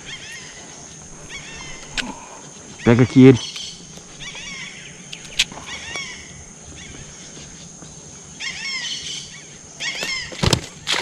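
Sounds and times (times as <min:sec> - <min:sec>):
birds chirping: 0:00.0 - 0:10.9
high insect drone: 0:00.0 - 0:11.0.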